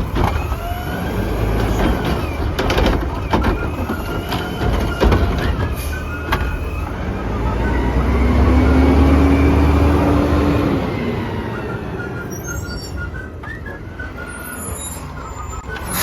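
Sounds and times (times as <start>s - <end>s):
garbage truck engine rumbling: 0.0s - 16.0s.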